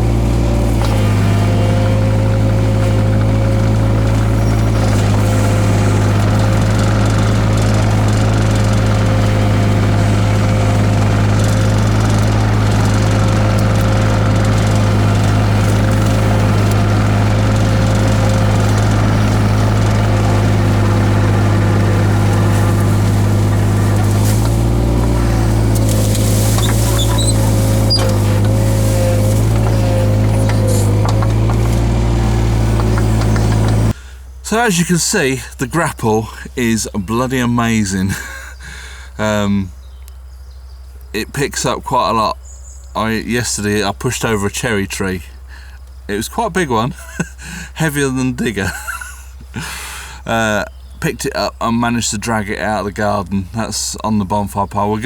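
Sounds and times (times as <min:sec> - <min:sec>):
excavator engine running: 0:00.0 - 0:55.0
faint high squeaks: 0:23.8 - 0:31.5.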